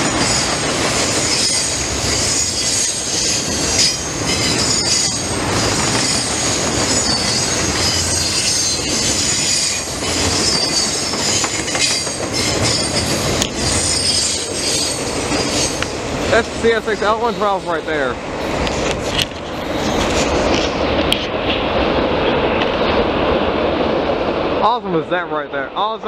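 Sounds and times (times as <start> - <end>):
freight train wheels rumbling: 0.0 - 26.0
wheel squeals: 1.1 - 16.0.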